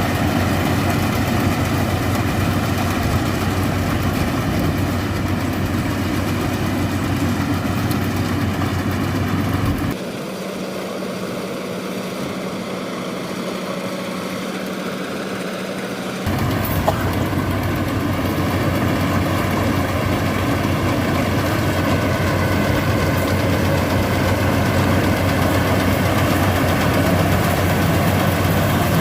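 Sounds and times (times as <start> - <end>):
combine harvester engine rumbling: 0.0 - 29.0
steady hum: 16.3 - 29.0.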